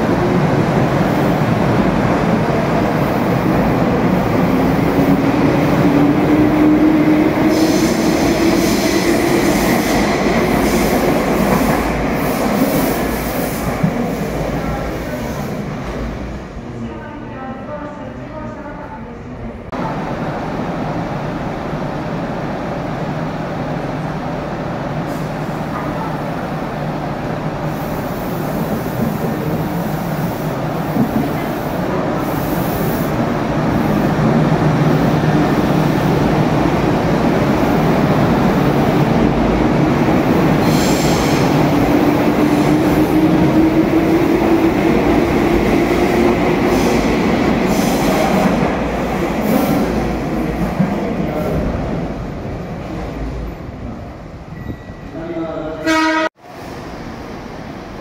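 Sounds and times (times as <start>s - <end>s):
train wheels rumbling on rails: 0.0s - 16.5s, 27.7s - 54.0s.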